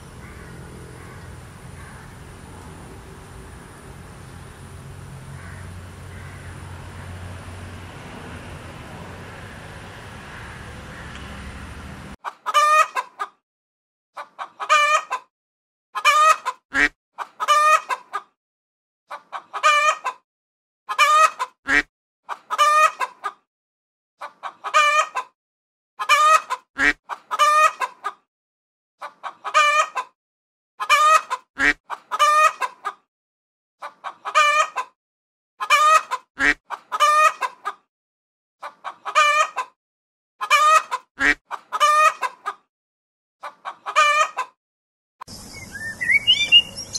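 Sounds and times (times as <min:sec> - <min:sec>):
chicken calls: 0:00.0 - 0:04.6, 0:05.2 - 0:07.3, 0:09.4 - 0:13.4, 0:14.2 - 0:15.3, 0:16.0 - 0:18.3, 0:19.1 - 0:20.2, 0:20.9 - 0:23.4, 0:24.2 - 0:25.3, 0:26.0 - 0:28.2, 0:29.0 - 0:30.1, 0:30.8 - 0:33.0, 0:33.8 - 0:34.9, 0:35.6 - 0:37.8, 0:38.6 - 0:39.8, 0:40.4 - 0:42.6, 0:43.4 - 0:44.6, 0:45.3 - 0:46.9.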